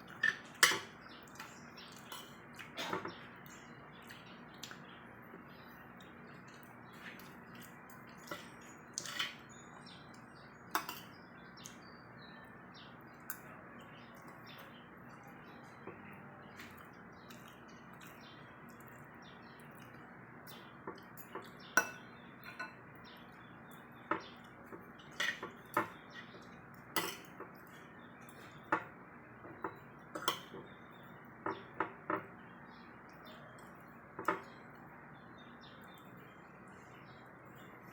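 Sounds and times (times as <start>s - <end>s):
cutlery clinking on a plate: 0.1s - 1.0s, 10.8s - 11.1s, 20.9s - 22.8s, 25.1s - 26.3s, 27.0s - 27.6s, 28.5s - 30.7s.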